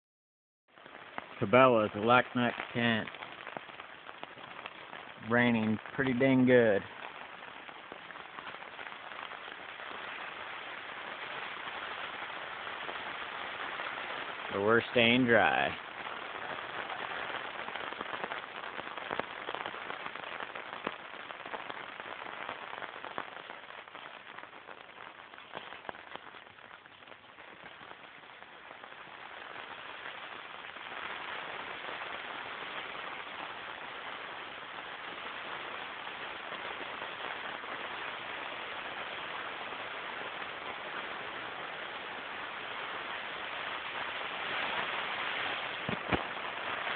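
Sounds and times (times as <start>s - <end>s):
hard rain on a tent: 0.7s - 46.9s.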